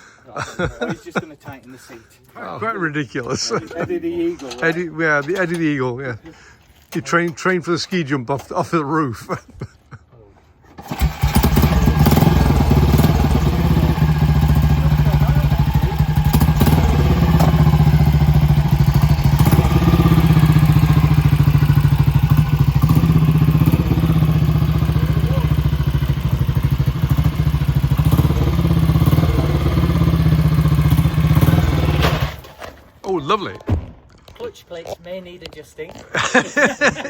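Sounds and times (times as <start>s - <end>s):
motorcycle engine running: 10.9s - 32.4s.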